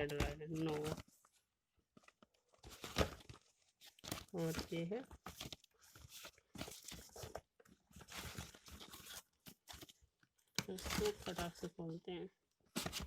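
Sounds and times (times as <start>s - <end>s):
packaging rustling and tearing: 2.0s - 11.7s, 12.7s - 13.0s.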